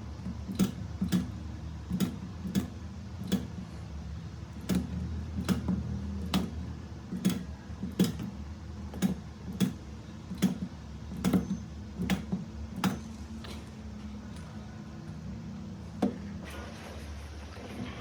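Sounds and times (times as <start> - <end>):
spot welder snapping: 0.1 - 3.8, 4.5 - 13.3.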